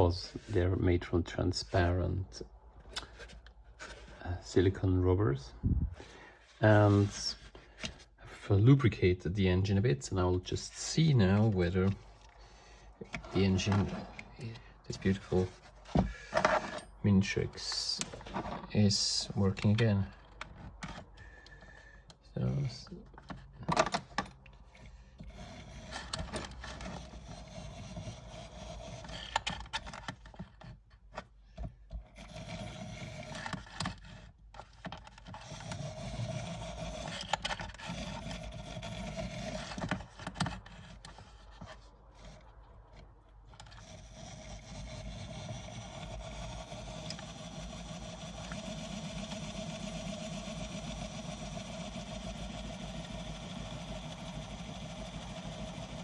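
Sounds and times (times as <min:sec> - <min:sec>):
model train motor whirring: 0:25.2 - 0:30.4, 0:32.1 - 0:42.4, 0:43.4 - 0:56.0.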